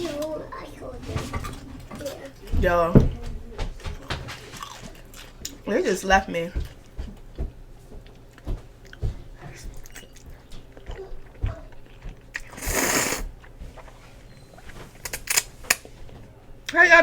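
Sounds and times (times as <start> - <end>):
person chewing noodles: 4.6 - 5.6, 8.0 - 15.4.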